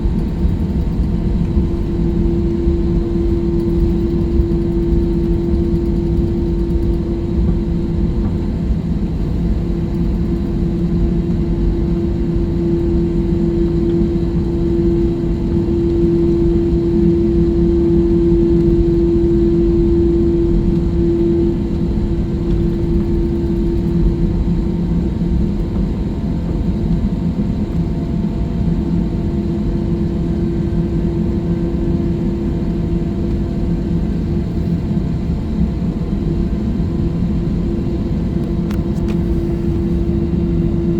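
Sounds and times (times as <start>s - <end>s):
jet engines roaring in cabin: 0.0s - 40.9s.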